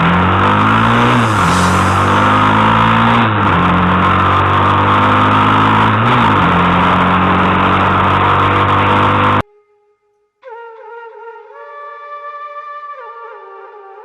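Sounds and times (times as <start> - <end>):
motorcycle engine accelerating: 0.0 - 9.4.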